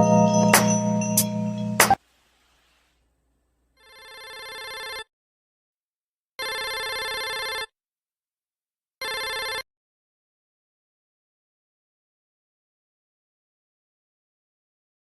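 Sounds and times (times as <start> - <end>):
electronic ringing tone: 0.0 - 1.9.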